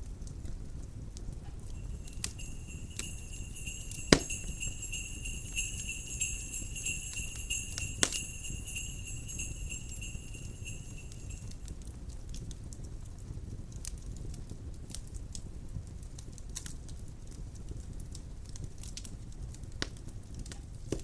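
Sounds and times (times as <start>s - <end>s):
crackling fireplace fire: 0.1s - 21.0s
jingle bells shaking: 1.7s - 11.7s.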